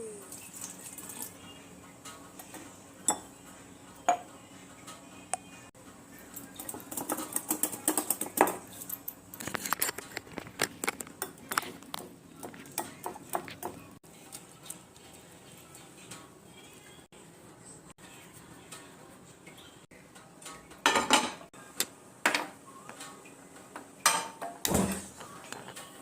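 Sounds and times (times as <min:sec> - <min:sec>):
utensils clinking on cookware: 0:00.2 - 0:03.4, 0:04.0 - 0:05.1, 0:06.2 - 0:16.3, 0:19.5 - 0:21.5, 0:23.8 - 0:26.0.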